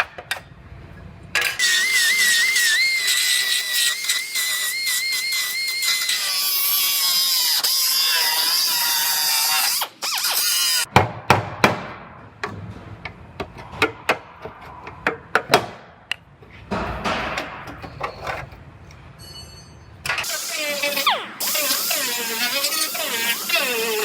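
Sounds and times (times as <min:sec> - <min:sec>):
power tool whining while cutting: 0:01.5 - 0:10.9, 0:20.2 - 0:24.0.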